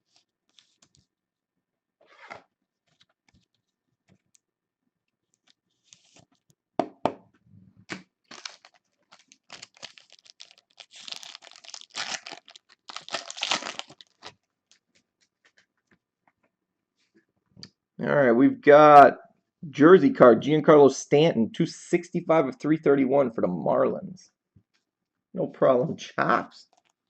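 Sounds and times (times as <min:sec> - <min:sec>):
packaging torn and crinkled: 0:07.9 - 0:14.8.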